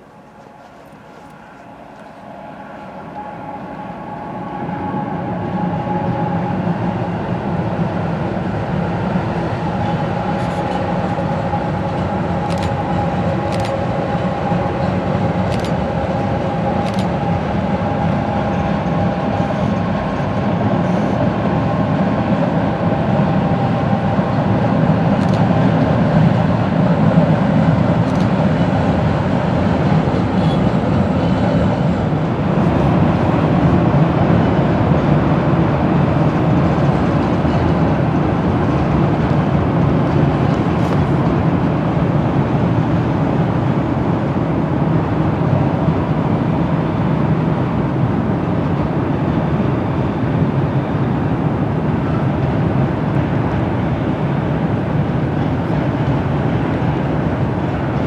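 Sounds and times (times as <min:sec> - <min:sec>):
freight train wheels on rail: 0:00.0 - 0:58.0
sharp clicks of train wheels: 0:10.2 - 0:17.5.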